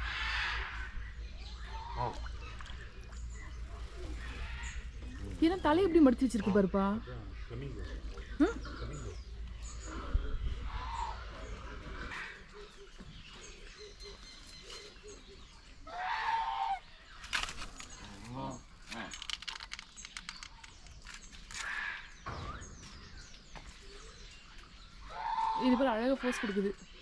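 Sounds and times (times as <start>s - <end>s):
birds calling and chirping: 0.0s - 27.0s
quick clicks: 18.9s - 21.8s.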